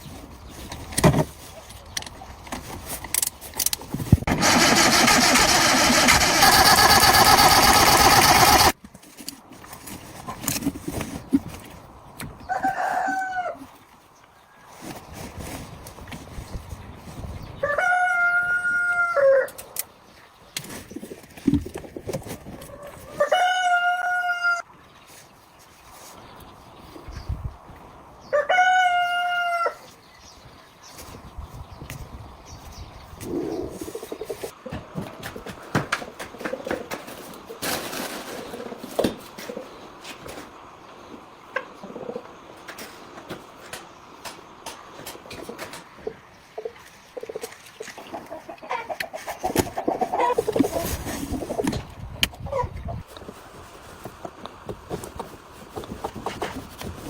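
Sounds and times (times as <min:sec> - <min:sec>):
rooster crowing: 0:12.5 - 0:13.7, 0:17.6 - 0:19.6, 0:23.2 - 0:24.6, 0:28.3 - 0:29.9.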